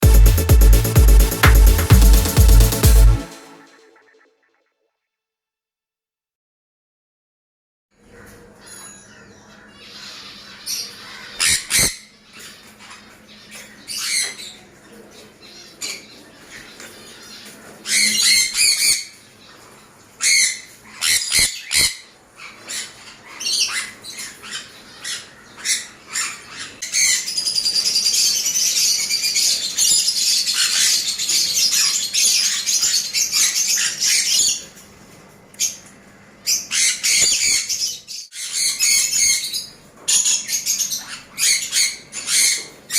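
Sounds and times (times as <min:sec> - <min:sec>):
parrots screeching: 0:20.2 - 0:34.6, 0:36.5 - 0:42.9.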